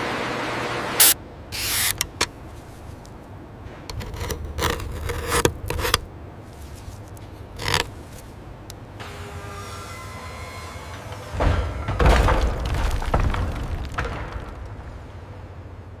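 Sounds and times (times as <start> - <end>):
scrapes and sharp clicks: 3.9 - 8.3.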